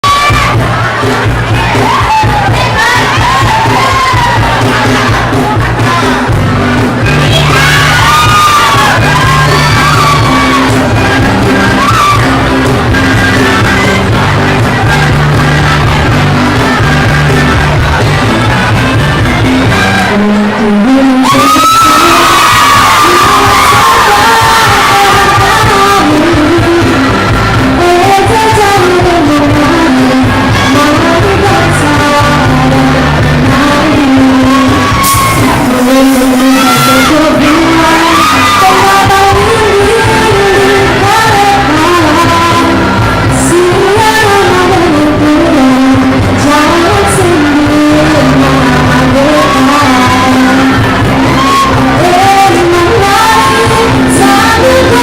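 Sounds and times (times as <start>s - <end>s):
people singing: 22.0s - 55.0s.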